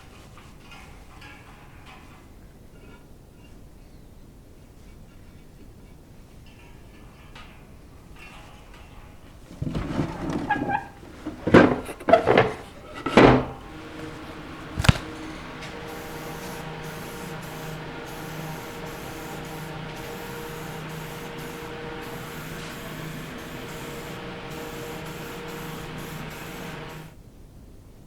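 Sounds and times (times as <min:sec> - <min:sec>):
low motor hum: 0:13.5 - 0:27.2
paint sprayer hissing: 0:13.6 - 0:27.2.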